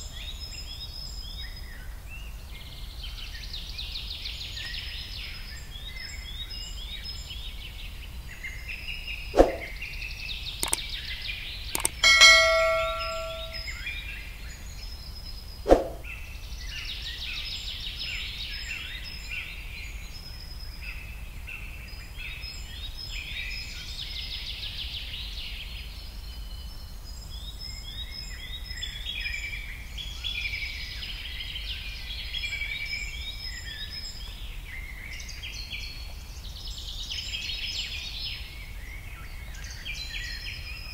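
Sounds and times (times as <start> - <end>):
birds chirping: 10.6 - 10.8, 11.8 - 13.6
sharp clicks: 10.6 - 10.8, 11.8 - 13.6
short metallic ring: 11.8 - 13.7.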